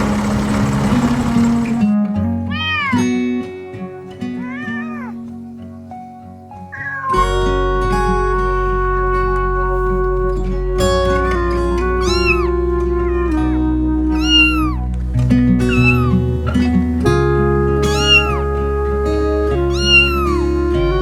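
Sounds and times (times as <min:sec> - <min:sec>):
background music: 0:01.4 - 0:21.0
cat meowing: 0:02.4 - 0:03.4, 0:04.3 - 0:05.2, 0:06.7 - 0:07.4, 0:12.0 - 0:14.9, 0:15.7 - 0:16.2, 0:17.8 - 0:18.7, 0:19.6 - 0:20.5.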